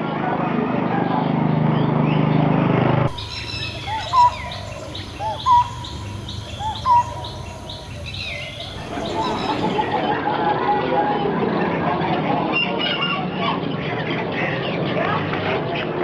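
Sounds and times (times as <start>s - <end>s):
songbirds chirping: 3.1s - 10.2s
whistled bird note rising and falling: 3.1s - 10.2s.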